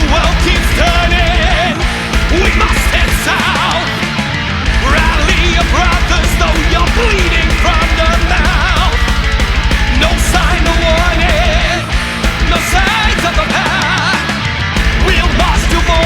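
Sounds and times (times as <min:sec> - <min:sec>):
distorted guitars: 0:00.0 - 0:16.0
heavy metal music: 0:00.0 - 0:16.0
double-kick drumming: 0:04.7 - 0:13.2.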